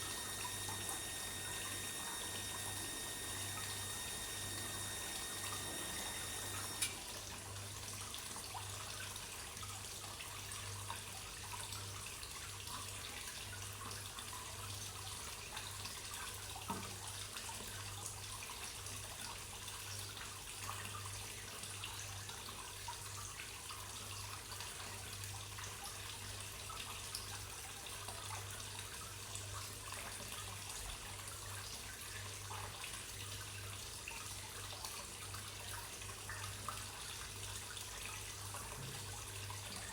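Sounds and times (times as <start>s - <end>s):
low steady hum: 0.0s - 7.3s
water trickling into a pond: 0.0s - 39.9s
click: 6.5s - 7.0s.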